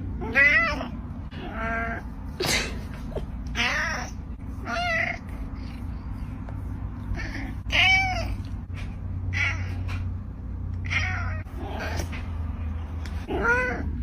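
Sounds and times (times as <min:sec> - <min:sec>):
cat meowing: 0:00.2 - 0:02.0, 0:03.5 - 0:05.3, 0:07.1 - 0:08.6, 0:10.8 - 0:12.0.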